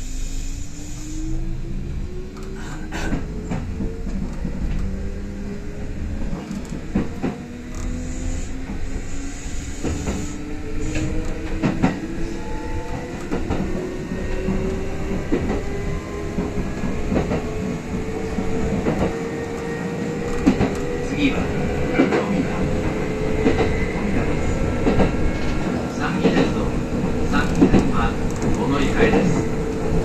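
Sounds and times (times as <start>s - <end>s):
train running rumble: 0.0s - 30.0s
wheels clicking over rail joints: 24.8s - 29.5s.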